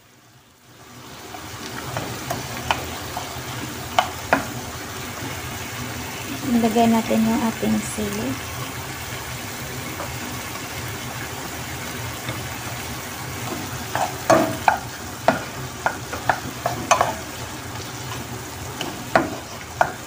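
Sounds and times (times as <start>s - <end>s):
food sizzling in a pan: 0.0s - 20.0s
wooden spoon scraping a pan: 1.3s - 5.6s, 12.2s - 20.0s.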